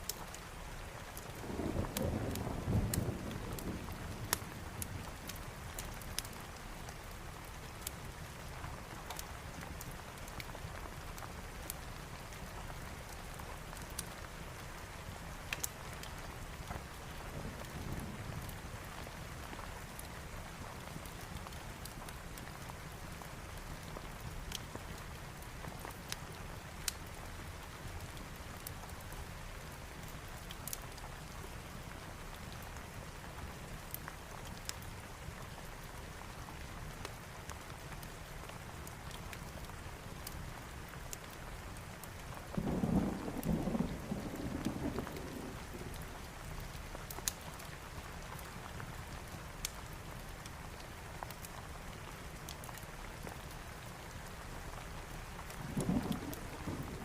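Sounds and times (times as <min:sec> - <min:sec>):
steady rain: 0:00.0 - 0:57.0
thunder rumble: 0:42.6 - 0:46.0, 0:55.6 - 0:57.0.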